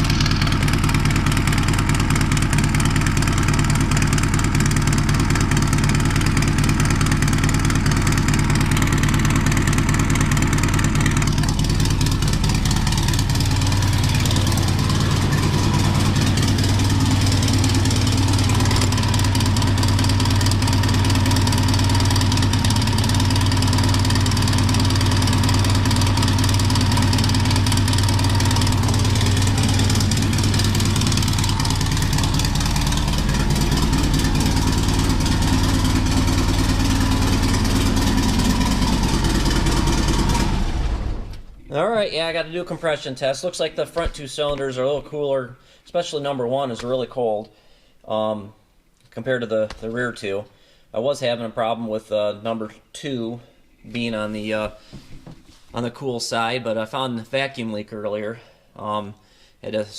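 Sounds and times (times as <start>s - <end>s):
car engine idling: 0.0s - 41.7s.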